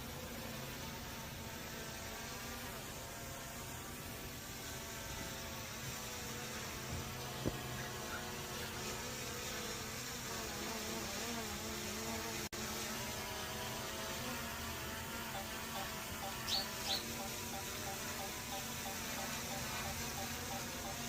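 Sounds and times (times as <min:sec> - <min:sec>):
drone propellers buzzing: 0:14.7 - 0:21.0
short high chirps: 0:16.2 - 0:20.6.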